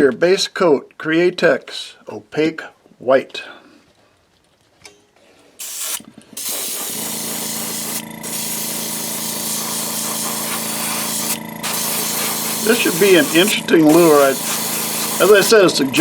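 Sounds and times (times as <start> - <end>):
airbrush spraying hiss: 5.6 - 16.0
steady hum: 5.7 - 16.0.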